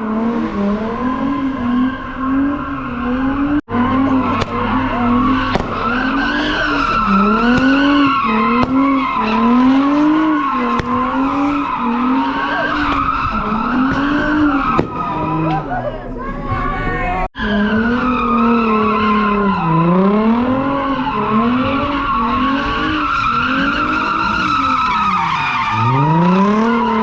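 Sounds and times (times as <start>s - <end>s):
car engine revving: 0.0s - 27.0s
tyres squealing: 2.3s - 19.8s.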